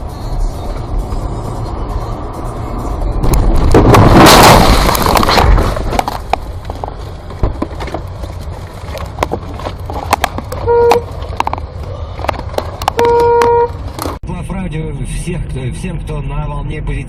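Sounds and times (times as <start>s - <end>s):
car crash impact crunch: 3.2s - 8.1s.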